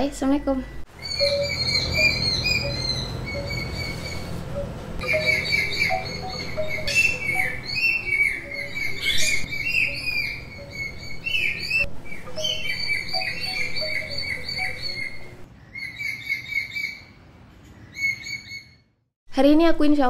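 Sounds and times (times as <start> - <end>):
small birds chirping: 0.4 - 18.8.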